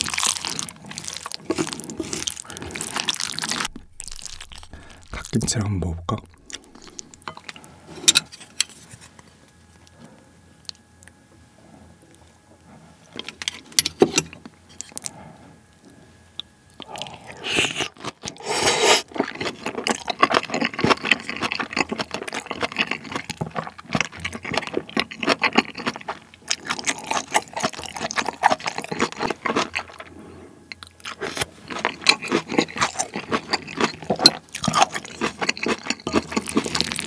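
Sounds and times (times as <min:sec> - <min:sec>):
wet chewing mouth sounds: 0:00.0 - 0:05.5, 0:06.1 - 0:07.6, 0:16.4 - 0:37.0.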